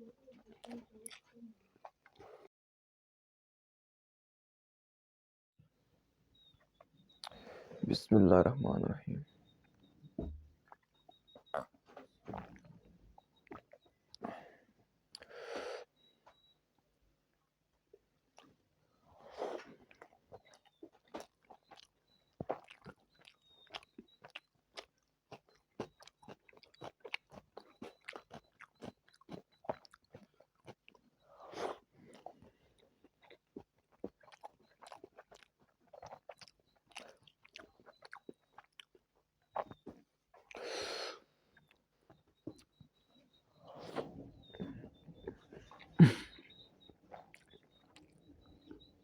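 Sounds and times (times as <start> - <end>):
close chewing with mouth smacks: 0.0 - 2.5, 6.4 - 7.5, 9.4 - 16.6, 17.8 - 49.0
breathy noises: 7.2 - 8.2, 43.2 - 49.0.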